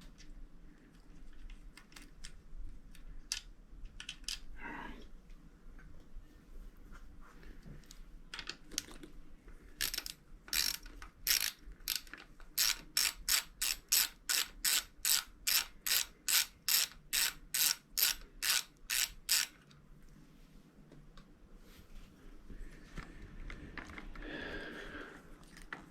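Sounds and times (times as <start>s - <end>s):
ratchet clicking: 9.8s - 19.6s.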